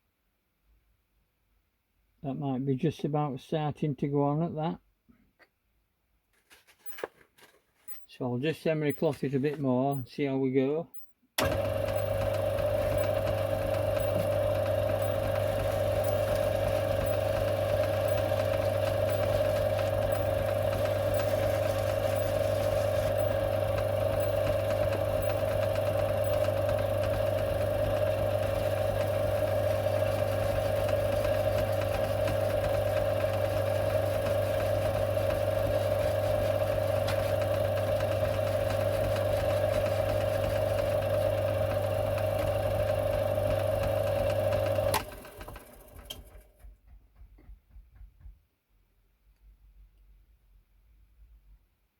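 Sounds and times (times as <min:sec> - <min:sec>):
lathe humming: 0:11.4 - 0:45.0
emery cloth on metal part: 0:14.0 - 0:25.5.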